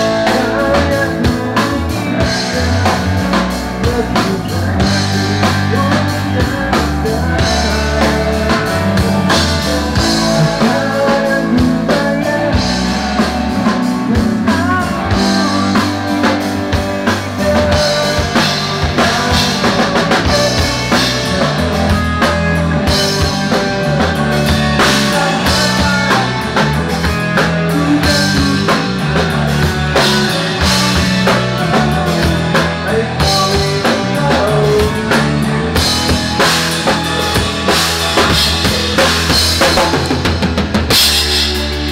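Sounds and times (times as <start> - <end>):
bass line: 0.0 - 41.9
drum kit: 0.0 - 41.9
electric guitar: 0.0 - 41.9.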